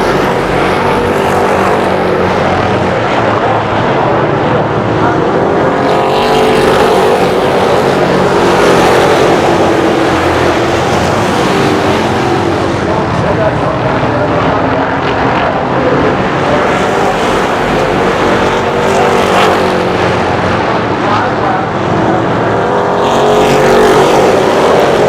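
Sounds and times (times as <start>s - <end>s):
race car engines passing by: 0.0s - 25.0s.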